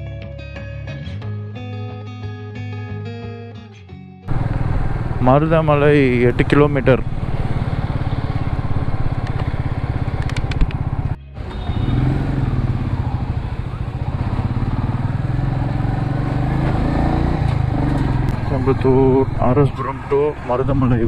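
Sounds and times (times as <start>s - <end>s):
motorcycle engine running: 4.3s - 21.0s.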